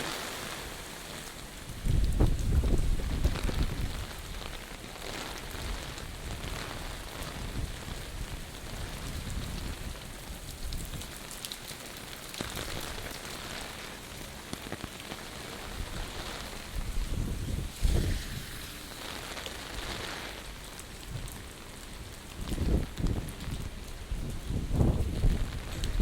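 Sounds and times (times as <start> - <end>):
heavy rain falling: 0.0 - 26.0
wind buffeting microphone: 1.6 - 4.6, 5.5 - 11.1, 15.7 - 26.0.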